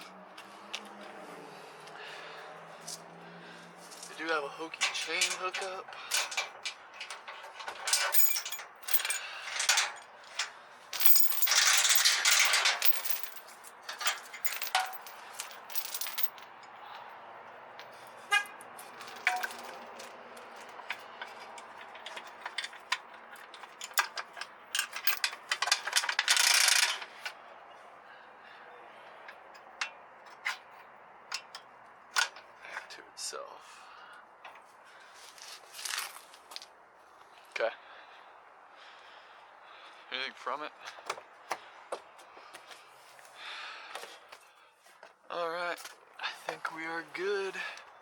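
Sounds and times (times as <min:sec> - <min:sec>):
rustling noise: 0:34.6 - 0:36.8.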